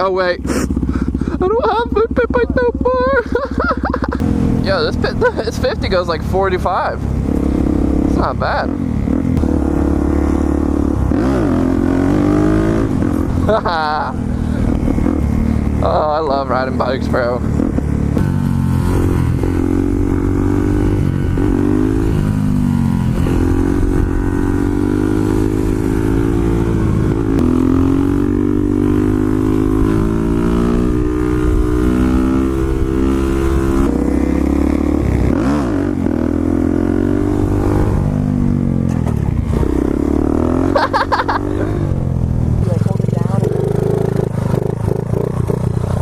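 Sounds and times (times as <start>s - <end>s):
small motorcycle engine accelerating: 17.5s - 46.0s.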